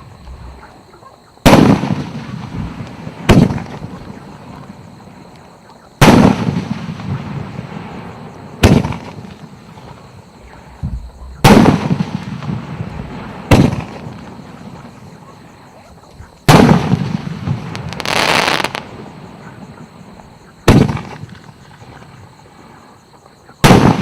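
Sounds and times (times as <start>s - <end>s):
firework booms: 1.4s - 5.1s, 6.0s - 15.7s, 16.3s - 22.2s, 23.6s - 24.0s
hissing crackle: 1.5s - 22.9s
small firework bang: 8.6s - 9.4s, 10.7s - 14.0s.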